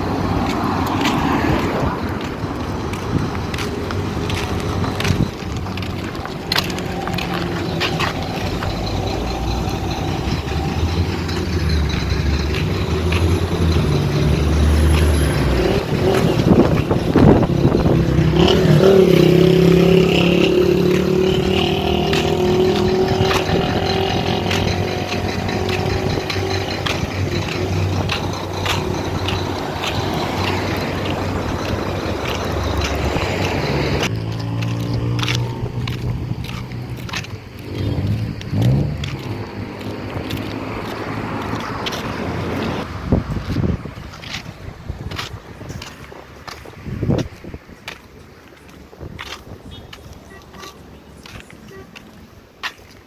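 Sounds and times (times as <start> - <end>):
knocks and rattles: 0.0 - 35.2
vehicle engine running: 0.0 - 43.7.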